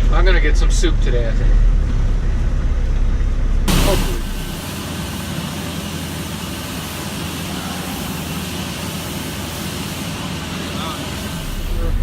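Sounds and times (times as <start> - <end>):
low hum: 0.0 - 5.3
gas heater flame roaring: 0.0 - 12.0.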